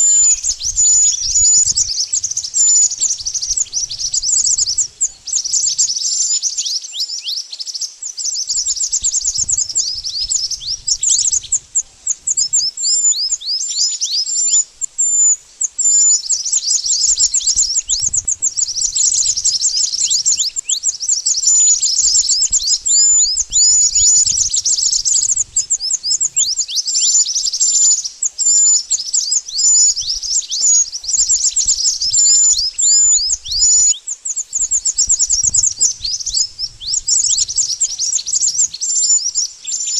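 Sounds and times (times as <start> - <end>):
bird chirps and whistles: 0.0 - 7.4, 8.0 - 39.9.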